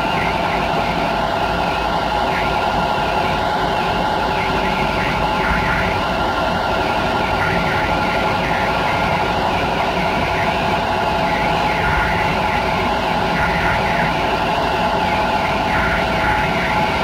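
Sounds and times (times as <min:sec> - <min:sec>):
steady multi-tone hum: 0:00.0 - 0:17.0.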